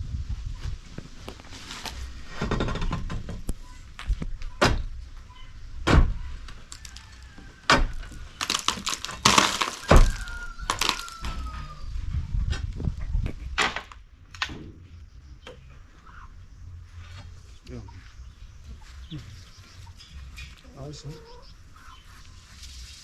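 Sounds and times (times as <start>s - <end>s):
knocks and thuds: 5.8s - 6.2s, 7.7s - 11.5s.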